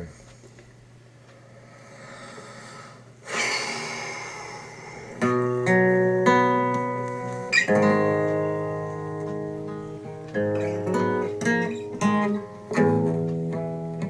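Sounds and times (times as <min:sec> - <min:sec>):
acoustic guitar strumming: 0:04.9 - 0:14.0.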